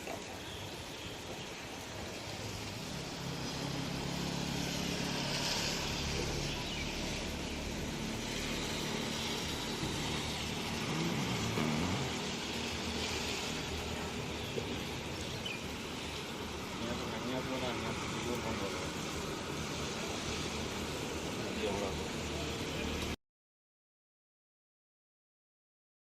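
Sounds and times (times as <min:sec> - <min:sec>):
rushing hiss: 0:00.0 - 0:23.1
engine humming: 0:02.3 - 0:23.1.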